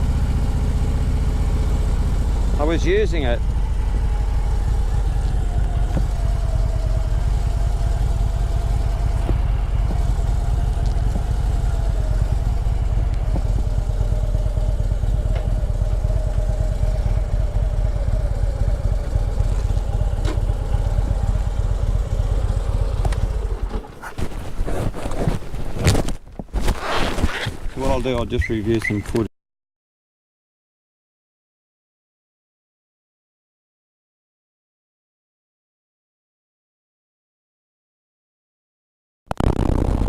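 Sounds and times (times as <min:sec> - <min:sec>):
motorcycle engine rumbling: 0:00.0 - 0:29.2.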